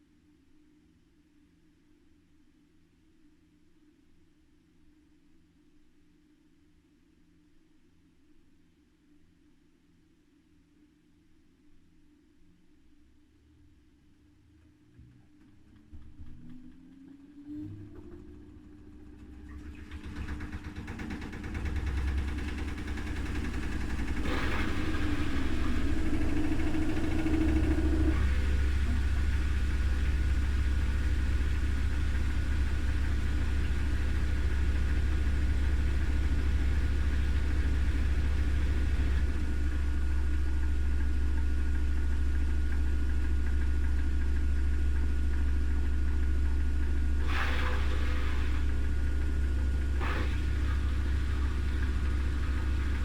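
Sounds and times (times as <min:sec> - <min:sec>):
washing machine drum spinning: 0:17.8 - 0:53.0.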